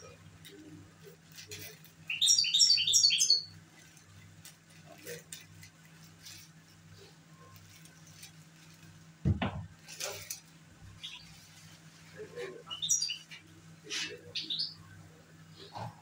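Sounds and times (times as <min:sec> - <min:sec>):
steady low hum: 0:00.0 - 0:16.0
songbird chirping: 0:01.6 - 0:03.6, 0:12.3 - 0:15.8
loud knock: 0:09.2 - 0:09.7.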